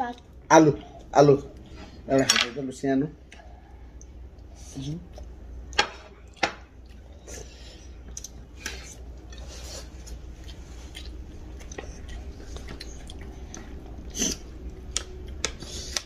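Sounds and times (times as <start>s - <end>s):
chewing and mouth smacks: 5.1s - 16.0s.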